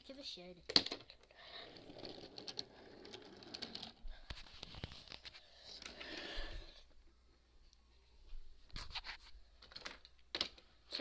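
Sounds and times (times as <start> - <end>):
wooden toy trains rolling: 0.7 - 4.0.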